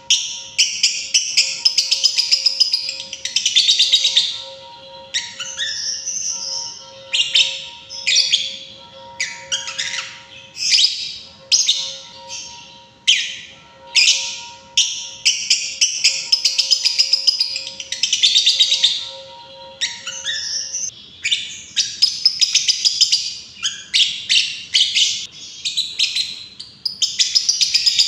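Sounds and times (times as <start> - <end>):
lovebird chattering: 0.0 - 20.9.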